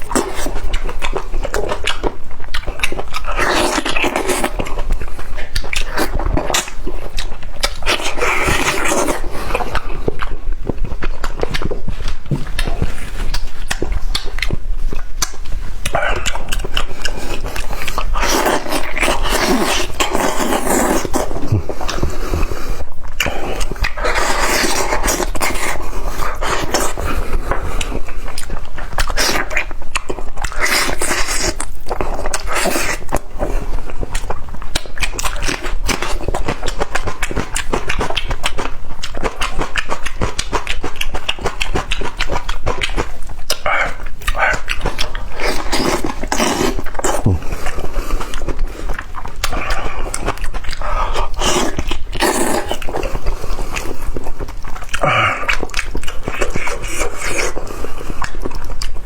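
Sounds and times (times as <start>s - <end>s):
wet chewing and lip smacking: 0.0s - 59.0s
breathy bursts: 55.0s - 55.6s.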